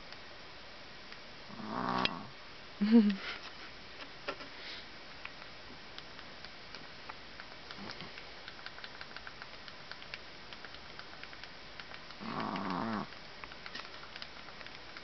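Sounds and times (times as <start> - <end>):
puppy snoring: 1.5 - 2.3, 12.2 - 13.2
faint irregular clicking: 5.2 - 15.0.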